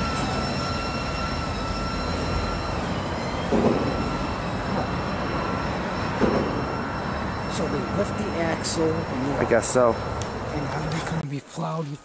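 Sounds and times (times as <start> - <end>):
freight train rumbling on rails: 0.0 - 11.2
steel wheels squealing: 0.0 - 11.2
loud knock: 3.5 - 4.0, 6.2 - 6.7.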